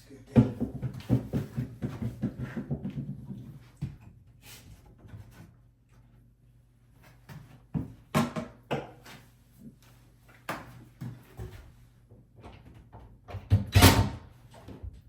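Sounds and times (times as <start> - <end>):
knocks and clunks on cabinet: 0.4 - 4.0, 7.8 - 9.0.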